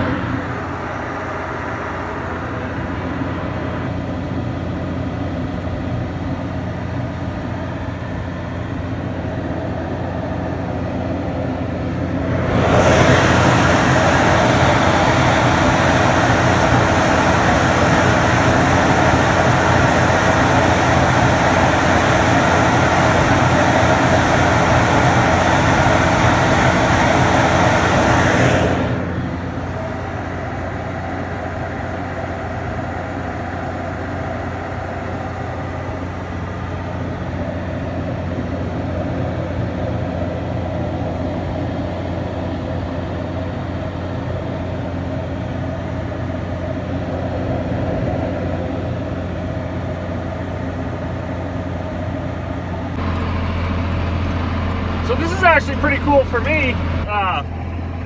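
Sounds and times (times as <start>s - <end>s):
heavy farm machinery droning: 0.0s - 58.0s
high hiss: 12.6s - 36.4s.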